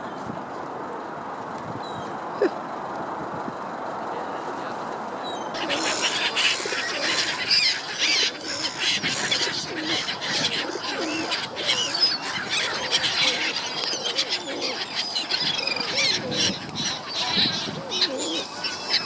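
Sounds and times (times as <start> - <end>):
birds chirping and squealing: 5.2 - 19.0.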